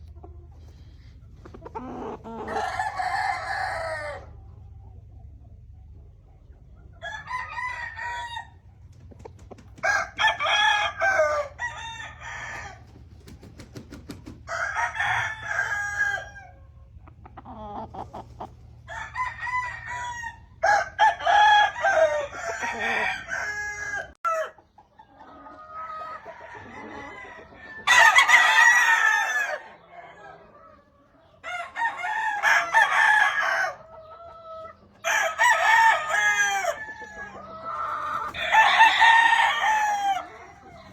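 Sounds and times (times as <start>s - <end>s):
roosters crowing: 0.7s - 4.5s, 6.9s - 8.8s, 9.7s - 13.2s, 14.3s - 16.9s, 17.5s - 24.6s, 25.3s - 30.6s, 31.3s - 40.9s.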